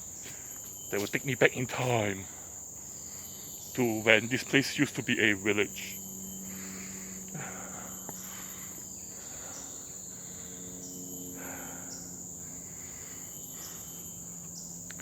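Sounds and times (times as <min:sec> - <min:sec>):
rustle: 0:00.0 - 0:05.2
insects droning: 0:00.0 - 0:15.0
pulsing insect call: 0:00.0 - 0:15.0.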